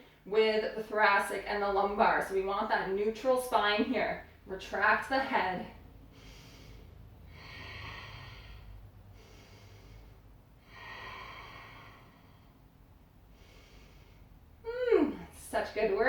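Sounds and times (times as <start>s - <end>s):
woman breathing: 5.8s - 15.4s.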